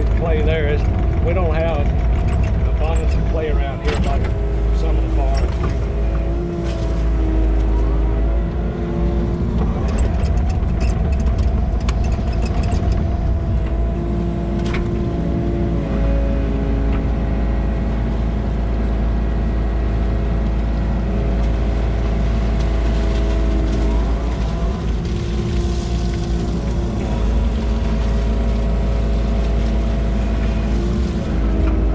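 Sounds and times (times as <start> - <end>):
tractor engine running: 0.0 - 31.9
clanks of digging: 0.8 - 5.9.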